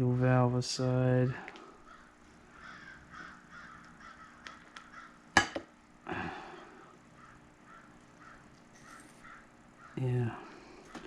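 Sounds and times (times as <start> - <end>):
crows cawing: 1.8 - 5.3, 7.1 - 10.0.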